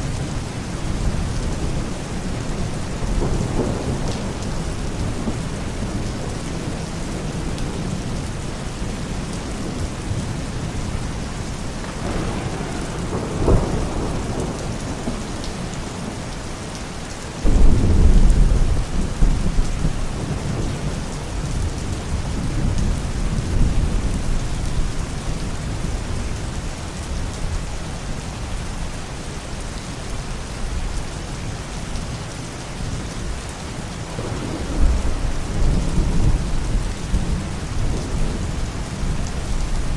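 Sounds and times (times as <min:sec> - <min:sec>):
steady rain: 0:00.0 - 0:39.9
low rumbling thunderclap: 0:11.8 - 0:16.3, 0:17.4 - 0:26.0, 0:34.1 - 0:39.9
thunder crack: 0:12.0 - 0:15.2, 0:17.4 - 0:20.0.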